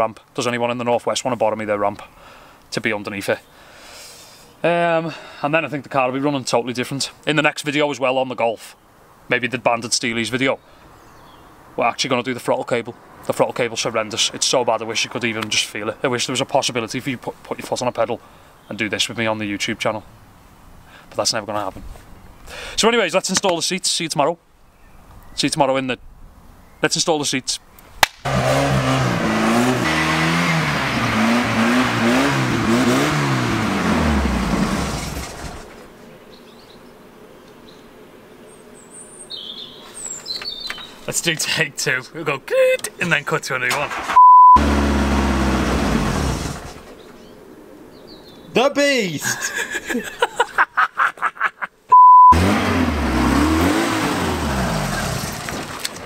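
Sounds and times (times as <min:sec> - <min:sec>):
car engine revving: 0:28.3 - 0:35.6, 0:44.6 - 0:46.8, 0:52.3 - 0:55.8
single-pitch bleep: 0:44.2 - 0:44.6, 0:51.9 - 0:52.4
man laughing: 0:49.1 - 0:51.9.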